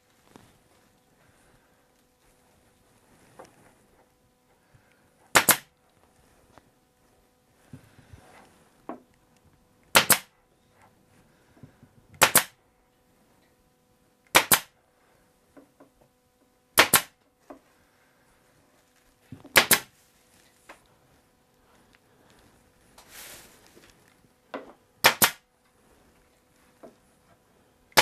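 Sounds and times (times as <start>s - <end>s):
pneumatic stapler firing: 5.4s - 5.7s, 9.9s - 10.3s, 12.2s - 12.6s, 14.3s - 14.7s, 16.8s - 17.2s, 19.5s - 19.9s, 25.0s - 25.4s.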